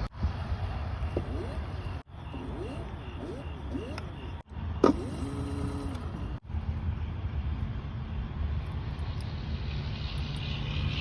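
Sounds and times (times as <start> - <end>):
faint two-tone hum: 0.0 - 6.9
wind and road noise rumble: 0.0 - 11.0.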